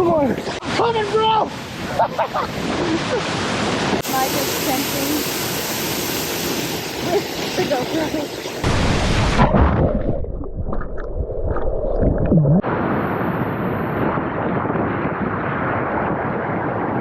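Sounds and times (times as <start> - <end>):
rush of falling water: 0.0 - 9.8
water sloshing and gurgling: 8.4 - 12.7
wind on microphone: 8.6 - 17.0.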